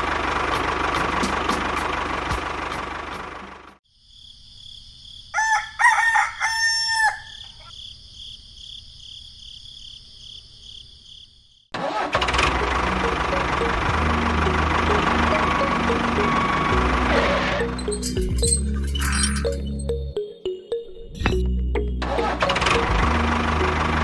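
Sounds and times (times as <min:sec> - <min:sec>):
loud engine noise: 0:00.0 - 0:03.8, 0:11.8 - 0:18.6, 0:22.0 - 0:24.0
rooster crowing: 0:05.3 - 0:07.7.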